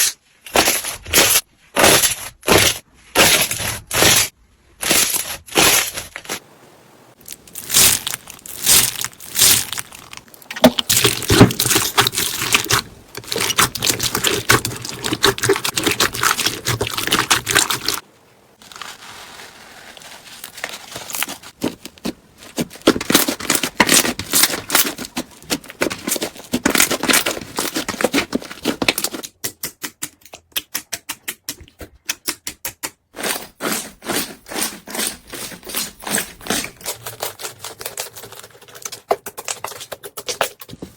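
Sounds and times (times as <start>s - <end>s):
slime crackling and popping: 7.2s - 18.0s.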